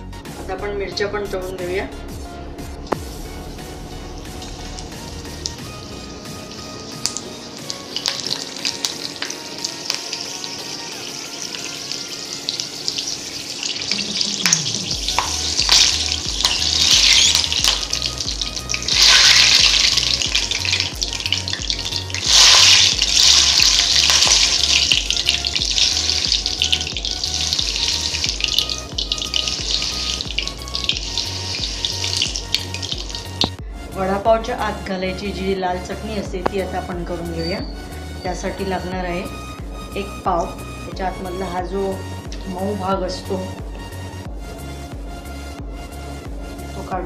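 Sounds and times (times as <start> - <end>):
chillies sizzling in hot oil: 4.2 - 33.6.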